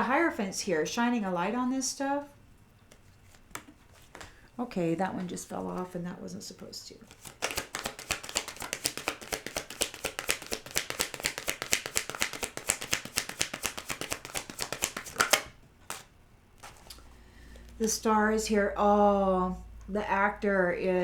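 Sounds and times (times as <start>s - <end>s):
cards being shuffled: 2.9s - 4.4s, 7.0s - 18.0s.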